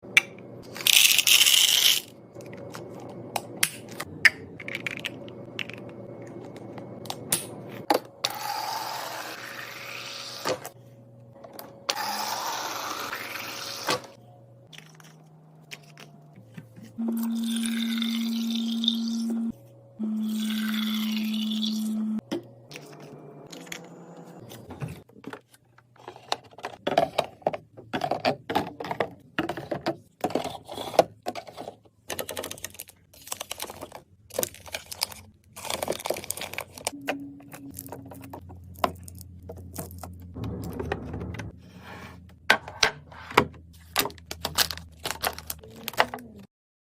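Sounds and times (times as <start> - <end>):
items clicking and knocking: 0.1 - 8.3, 22.2 - 41.6, 42.3 - 46.5.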